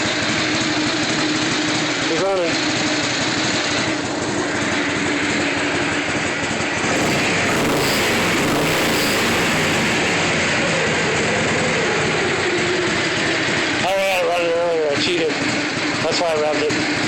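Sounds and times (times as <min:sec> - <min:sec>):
motorcycle engine running: 0:06.9 - 0:10.6.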